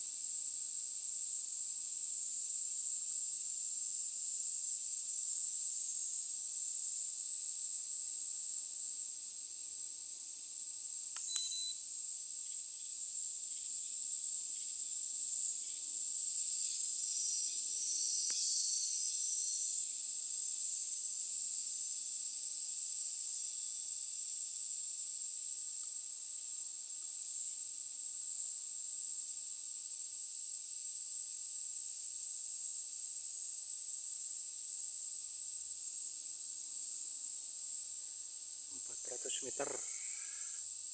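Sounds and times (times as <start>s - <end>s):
crickets buzzing: 0.0s - 40.9s
short high beep: 11.3s - 11.8s.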